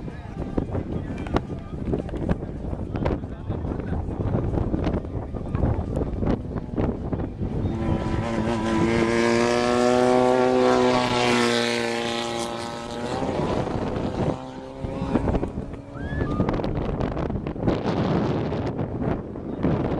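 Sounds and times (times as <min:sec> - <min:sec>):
race vehicle engine passing: 0:07.4 - 0:18.8.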